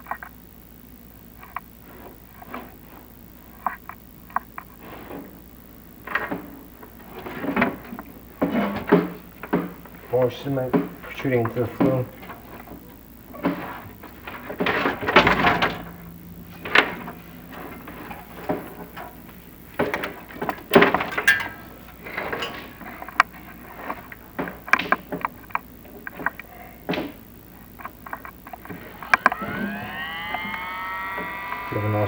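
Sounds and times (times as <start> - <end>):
camera scraping in chimney flue: 1.4 - 15.8, 21.6 - 29.0.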